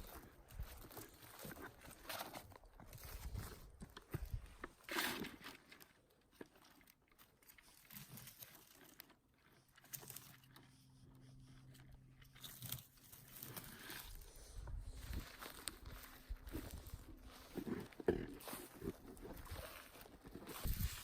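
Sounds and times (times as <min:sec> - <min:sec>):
footsteps crunching on forest floor: 0:00.0 - 0:05.6, 0:12.4 - 0:21.0
faint low hum: 0:09.0 - 0:19.8.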